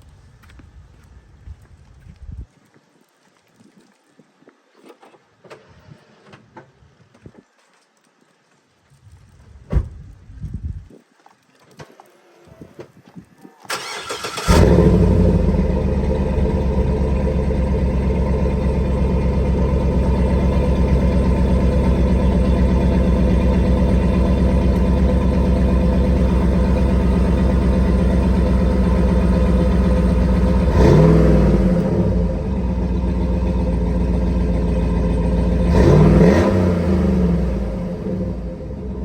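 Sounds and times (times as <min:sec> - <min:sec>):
car engine idling and revving: 0:13.8 - 0:39.0.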